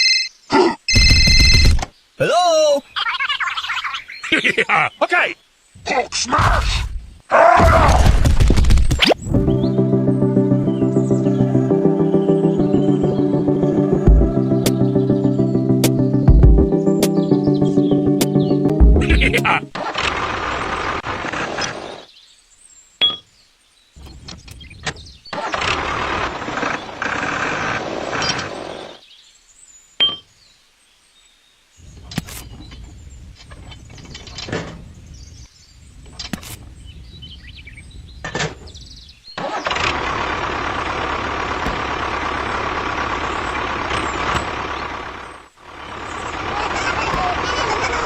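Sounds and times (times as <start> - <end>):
small engine running: 39.4 - 48.0.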